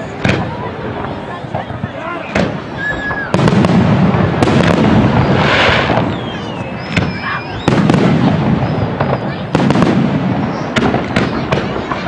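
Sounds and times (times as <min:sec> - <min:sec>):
fireworks bangs: 0:00.0 - 0:12.0
falling firework whistle: 0:02.3 - 0:03.6, 0:04.5 - 0:11.4
firework hiss: 0:02.3 - 0:12.0.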